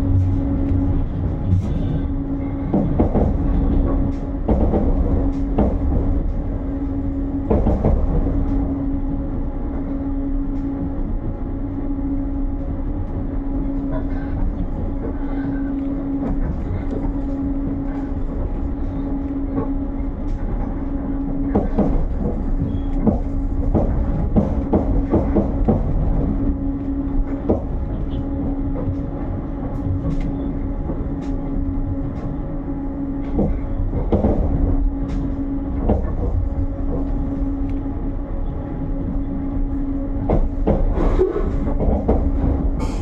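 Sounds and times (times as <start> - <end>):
train carriage rumble and hum: 0.0 - 43.0.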